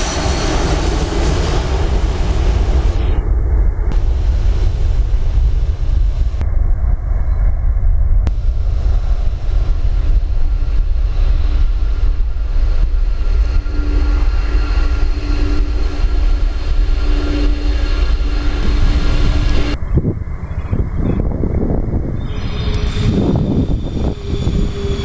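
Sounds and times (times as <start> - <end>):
jet engines roaring: 0.0 - 25.0
wind rumble on microphone: 0.0 - 25.0.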